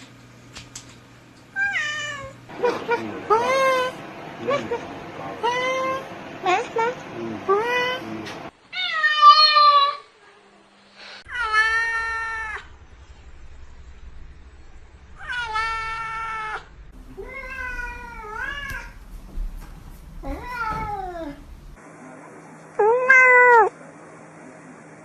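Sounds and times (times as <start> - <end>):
cat meowing: 15.2 - 19.0, 20.2 - 21.7, 22.8 - 23.7.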